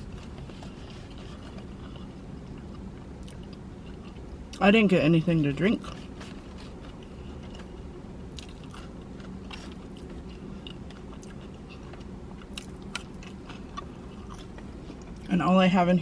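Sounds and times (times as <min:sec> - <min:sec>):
person chewing food: 0:00.0 - 0:04.6, 0:05.8 - 0:15.3
food crunches: 0:05.8 - 0:15.3.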